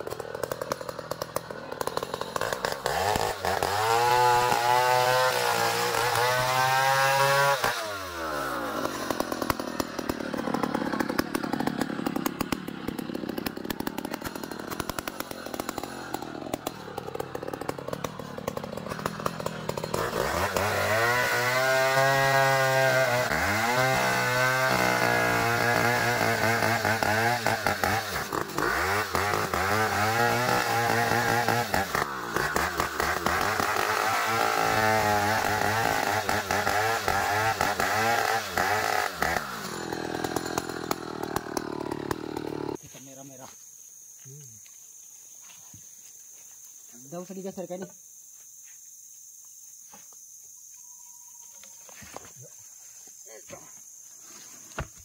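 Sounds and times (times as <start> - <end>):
band saw motor revving: 0.0 - 42.8.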